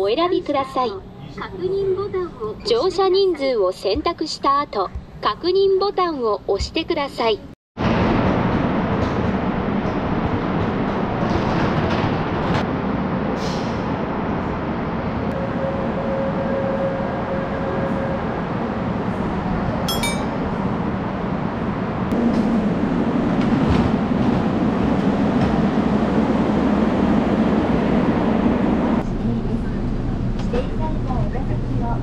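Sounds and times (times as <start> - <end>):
underground train noise: 0.0 - 32.0
metallic clink: 19.9 - 20.4.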